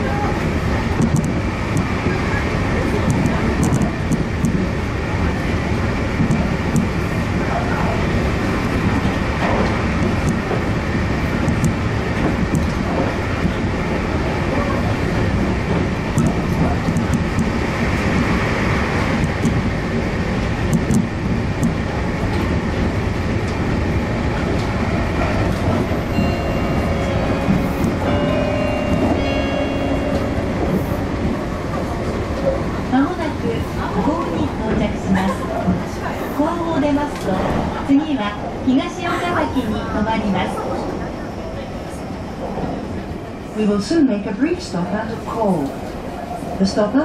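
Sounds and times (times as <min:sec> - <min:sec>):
train wheels rumbling on rail: 0:00.0 - 0:47.0
steady tones: 0:24.1 - 0:33.5.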